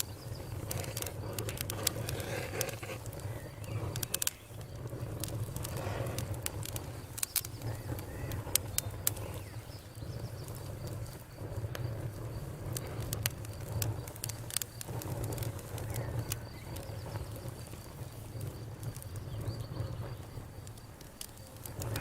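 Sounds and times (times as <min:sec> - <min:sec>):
low fire rumble: 0:00.0 - 0:22.0
sharp pops from fire: 0:00.0 - 0:22.0
wood crackling in campfire: 0:00.0 - 0:22.0.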